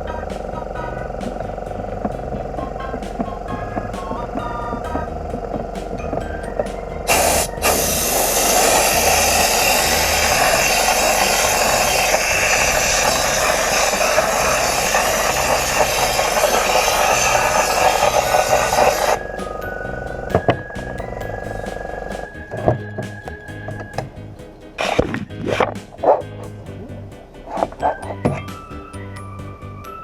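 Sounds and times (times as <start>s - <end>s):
workshop tool hissing: 7.1s - 19.8s.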